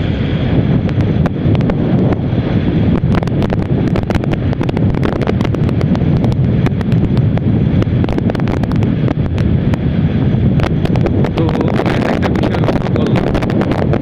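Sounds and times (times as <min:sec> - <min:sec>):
motorcycle running: 0:00.0 - 0:14.0
wind buffeting microphone: 0:00.0 - 0:14.0.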